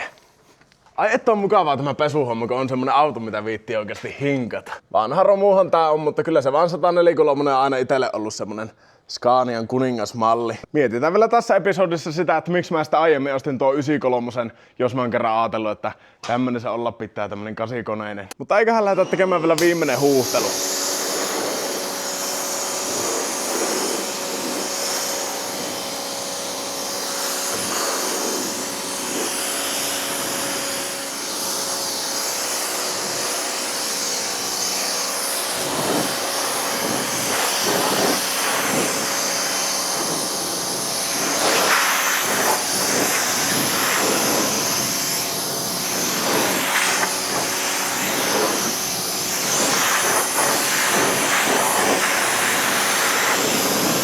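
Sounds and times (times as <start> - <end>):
washer motor hum: 19.1 - 54.0
pressure washer water hissing: 19.2 - 54.0.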